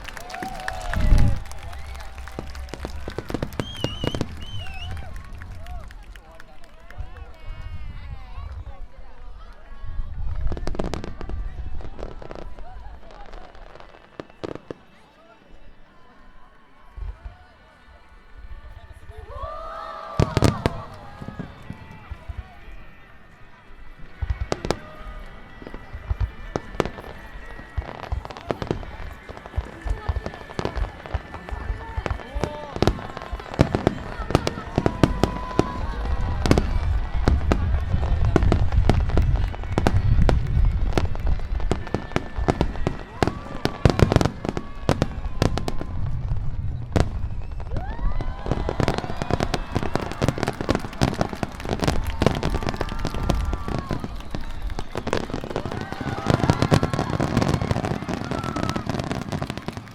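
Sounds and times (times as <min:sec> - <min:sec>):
fireworks cracking and booming: 0:00.0 - 0:08.8, 0:10.2 - 0:14.9, 0:20.1 - 0:22.9, 0:24.0 - 0:59.9.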